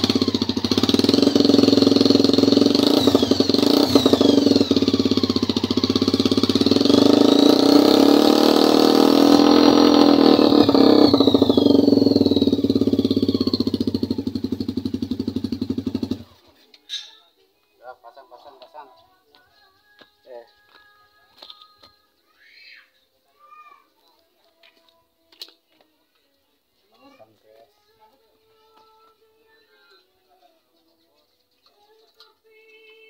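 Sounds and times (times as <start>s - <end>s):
motorcycle engine revving: 0.0s - 16.5s.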